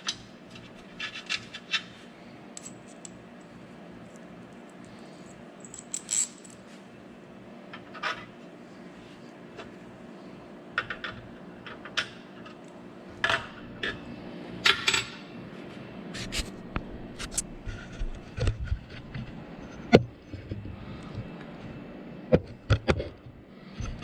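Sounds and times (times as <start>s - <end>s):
metal hardware clinking: 2.6s - 3.1s, 5.6s - 6.6s.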